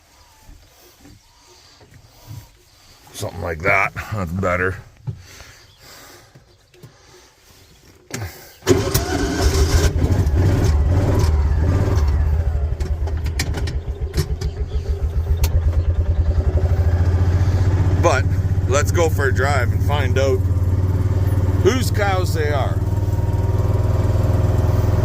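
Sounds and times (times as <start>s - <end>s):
vehicle engine starting and idling: 8.1s - 25.0s.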